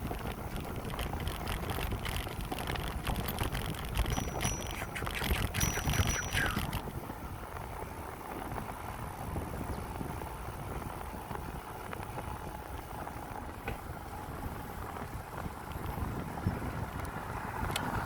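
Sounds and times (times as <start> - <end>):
wind on microphone: 0.0 - 7.4, 14.3 - 18.0
bicycle rolling noise: 0.0 - 18.0.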